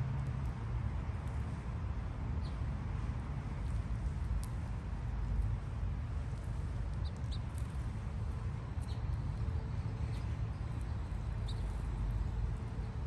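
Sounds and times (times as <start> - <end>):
small birds chirping: 7.0 - 7.8, 10.0 - 12.4.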